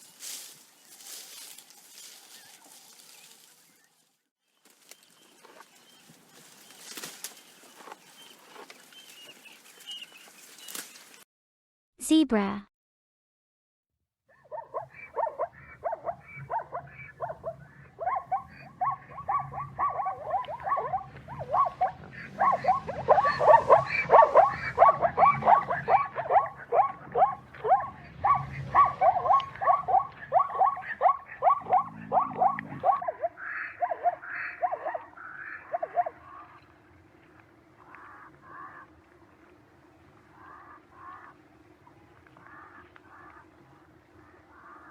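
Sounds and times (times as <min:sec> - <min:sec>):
zebra barking yelps: 0:14.3 - 0:36.7.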